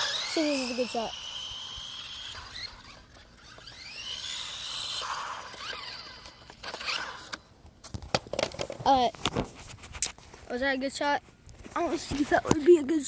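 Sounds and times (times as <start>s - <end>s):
toy truck electric motor whining: 0.0s - 7.4s.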